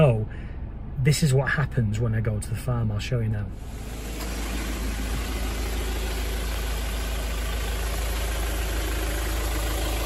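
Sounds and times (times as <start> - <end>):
vehicle engine idling: 3.5 - 10.0.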